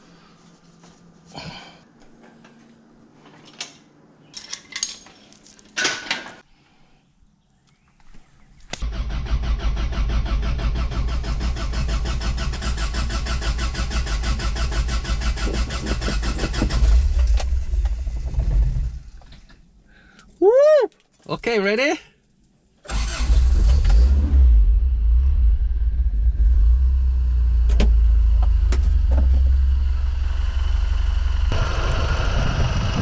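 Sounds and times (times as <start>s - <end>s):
engine cranking by starter: 8.8s - 19.6s, 22.8s - 24.8s.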